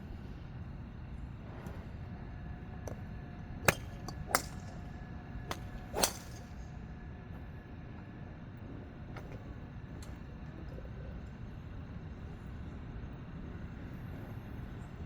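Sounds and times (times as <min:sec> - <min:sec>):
golf clubs striking balls: 0:02.8 - 0:06.7.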